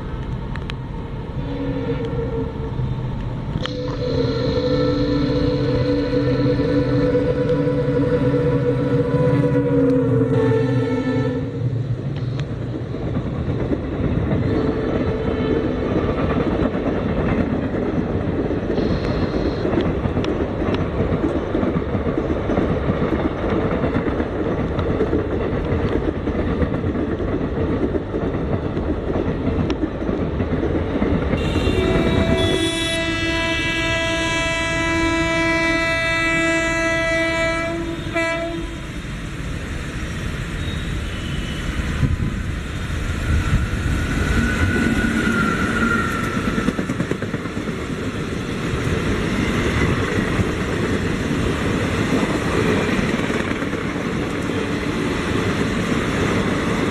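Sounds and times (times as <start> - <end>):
train rumble and wheel clatter: 0.0 - 56.9
train horn long blast: 1.4 - 2.8, 3.6 - 11.7, 31.4 - 39.1.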